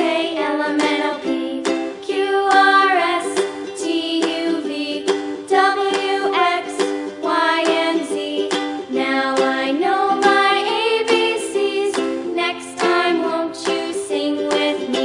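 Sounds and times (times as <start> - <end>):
person singing: 0.0 - 15.0
ukulele strumming: 0.0 - 15.0.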